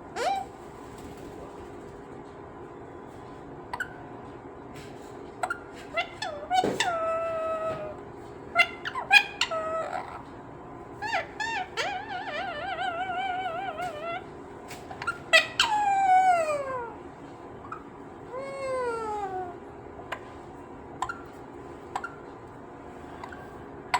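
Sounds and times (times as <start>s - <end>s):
parrot squawking and chirping: 0.1s - 0.6s, 5.4s - 10.3s, 10.9s - 17.0s, 17.6s - 20.3s, 21.0s - 22.3s, 23.0s - 23.9s
parrot warbling call: 0.2s - 0.5s, 5.4s - 10.3s, 11.0s - 14.3s, 14.9s - 17.0s.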